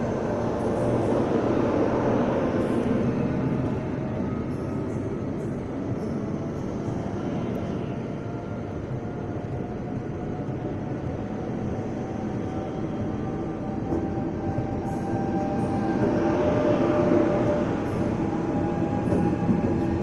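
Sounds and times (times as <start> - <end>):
train wheels rumbling: 8.3 - 20.0.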